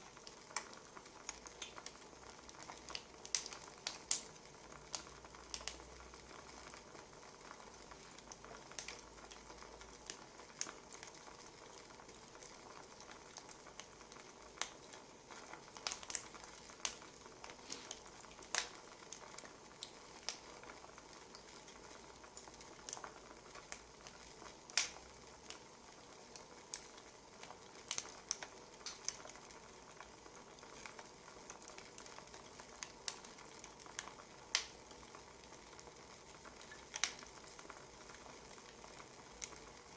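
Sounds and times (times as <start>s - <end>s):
wood fire crackling and popping: 0.0s - 39.9s
fire hissing: 17.4s - 18.8s.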